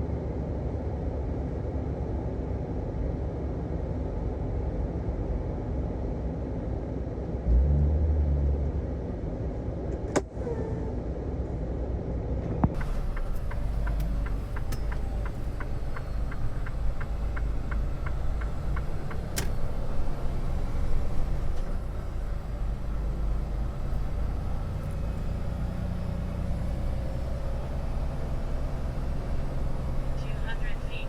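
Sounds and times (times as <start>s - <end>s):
diesel truck engine rumbling: 4.0s - 31.0s.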